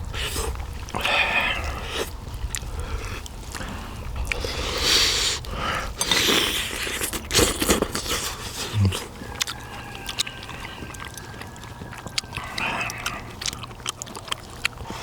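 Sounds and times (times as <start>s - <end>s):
chewing and slurping: 0.0s - 15.0s.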